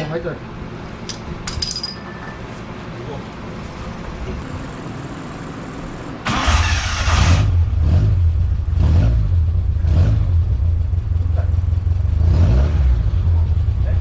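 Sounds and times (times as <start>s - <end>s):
truck engine starting and idling: 4.9s - 8.7s
exhaust burst: 6.2s - 8.2s.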